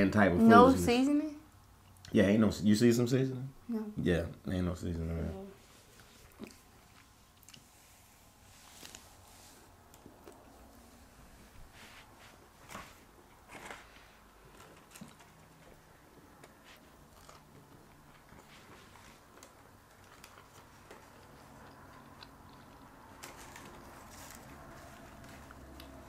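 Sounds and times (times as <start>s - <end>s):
faint chewing: 5.7s - 11.9s, 12.7s - 26.0s.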